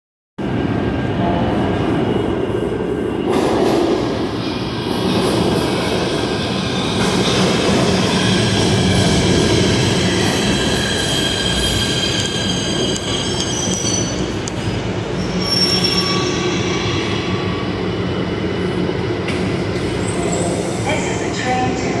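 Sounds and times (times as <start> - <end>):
subway train rumbling: 0.4 - 22.0
wheel squeal: 15.3 - 17.0.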